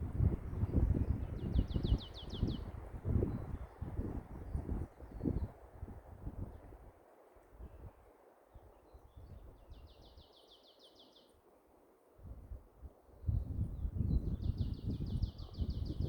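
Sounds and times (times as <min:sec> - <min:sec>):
wind rumble on microphone: 0:00.0 - 0:08.0, 0:08.6 - 0:10.2, 0:12.2 - 0:16.0.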